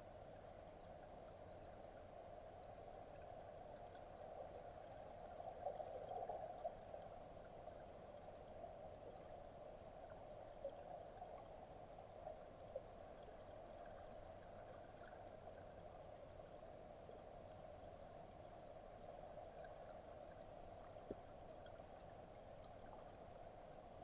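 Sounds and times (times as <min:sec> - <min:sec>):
soft ticks: 0:10.0 - 0:23.4.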